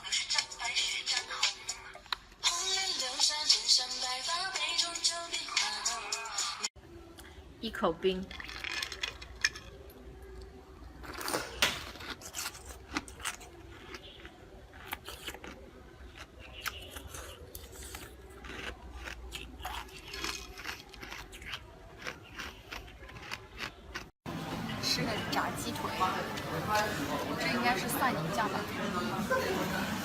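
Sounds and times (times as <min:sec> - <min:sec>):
person crunching ice: 0:11.0 - 0:24.1.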